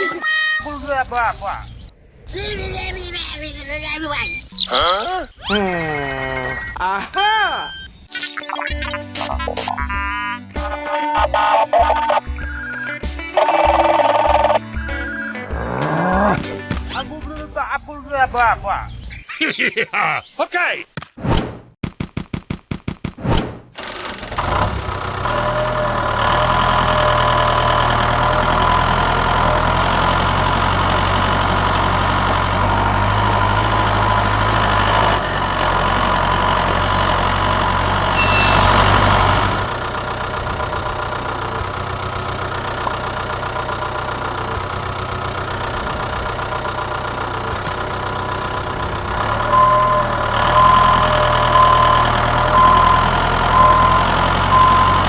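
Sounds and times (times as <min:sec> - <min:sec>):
small engine running: 0:00.6 - 0:05.1, 0:13.4 - 0:16.8, 0:23.8 - 0:55.0.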